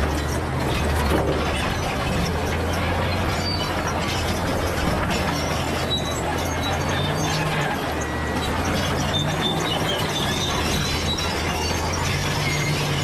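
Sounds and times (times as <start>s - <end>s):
bulldozer diesel engine running: 0.0s - 13.0s
steel tracks rattling: 0.0s - 13.0s
high squeals: 2.7s - 13.0s.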